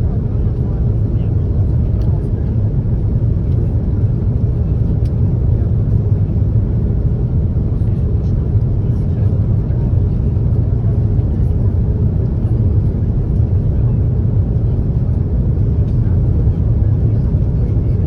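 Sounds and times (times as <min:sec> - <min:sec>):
airplane cabin engine rumble: 0:00.0 - 0:18.0.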